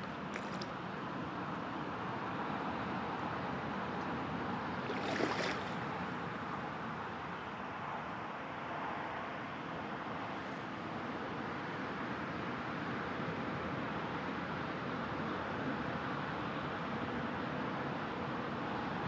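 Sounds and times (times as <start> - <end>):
water noise: 0.0 - 0.8, 4.7 - 6.6.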